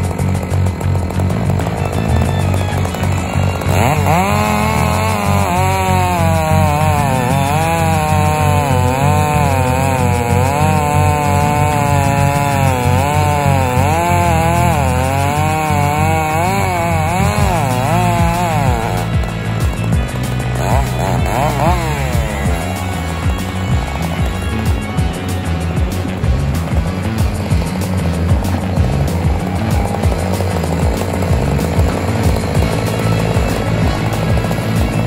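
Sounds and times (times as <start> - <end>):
chainsaw cutting at high revs: 0.0 - 35.0
background music with steady beat: 15.8 - 35.0.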